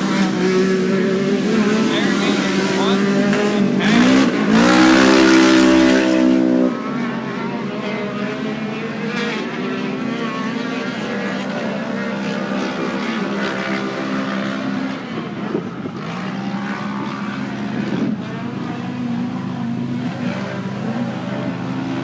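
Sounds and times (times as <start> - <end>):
drone propellers humming: 0.0 - 7.8, 13.2 - 22.0
faint race car engines: 0.0 - 22.0.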